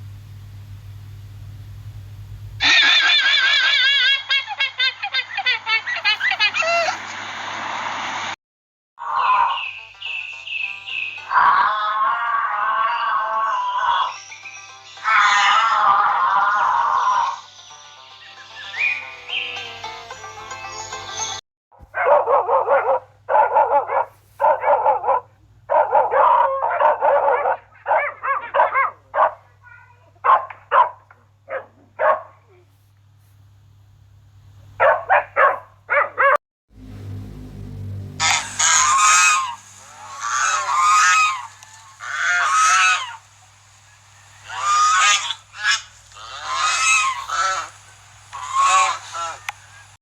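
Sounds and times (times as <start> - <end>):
steady low hum: 0.0 - 2.8, 31.0 - 36.0, 36.7 - 50.0
dog yapping: 2.6 - 4.6, 11.3 - 14.1, 15.0 - 17.4, 21.9 - 32.6, 34.8 - 36.4, 38.2 - 43.3, 44.2 - 49.8
goose honking: 38.2 - 50.0.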